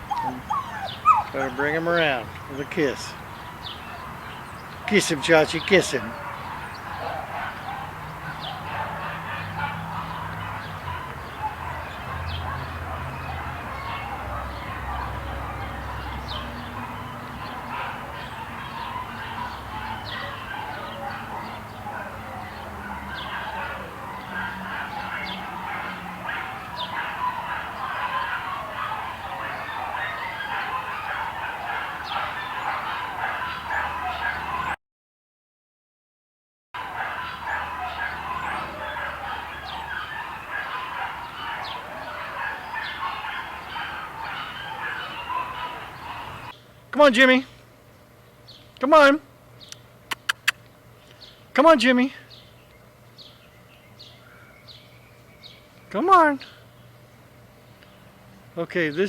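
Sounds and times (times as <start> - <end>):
bird chirps: 0.0 - 4.9
chorus of bird calls: 0.0 - 34.8, 36.8 - 46.8, 47.8 - 59.0
distant dogs barking: 0.0 - 34.8, 36.8 - 59.0
quick high chirps: 50.1 - 50.6.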